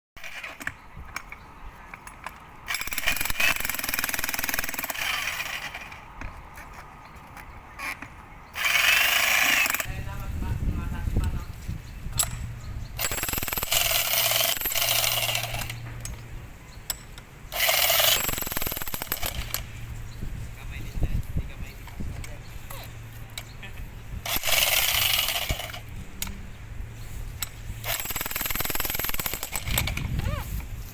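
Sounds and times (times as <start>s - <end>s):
jackhammer hammering: 2.7s - 6.0s, 8.6s - 10.0s, 13.0s - 16.2s, 16.9s - 19.8s, 24.2s - 26.4s, 27.4s - 30.1s
steady low hum: 18.8s - 30.8s.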